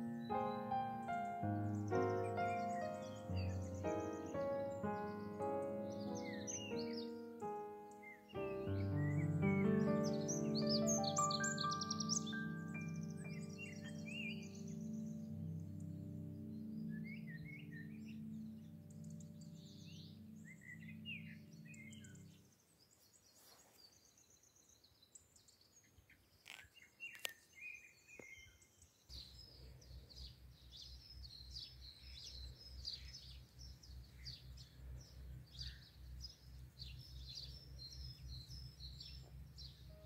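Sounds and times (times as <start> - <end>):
background music: 0.0 - 22.2
small birds chirping: 0.0 - 40.0.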